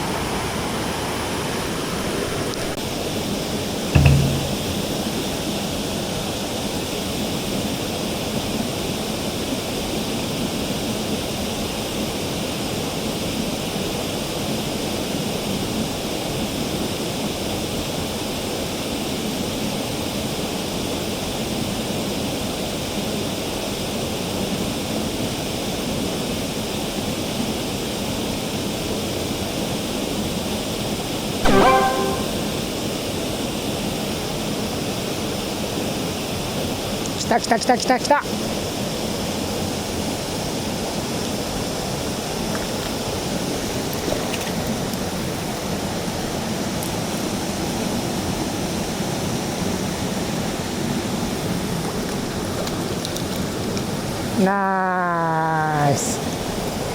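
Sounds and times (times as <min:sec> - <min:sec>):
brief pitched sound: 0:31.4 - 0:32.6.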